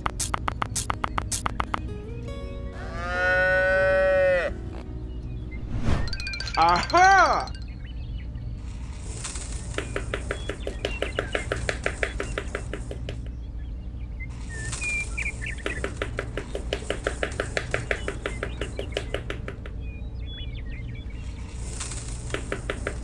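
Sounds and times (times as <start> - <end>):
faint bird chirps: 4.7 - 22.2
small hammer tapping wood: 9.8 - 13.3, 15.6 - 19.8, 22.3 - 23.0.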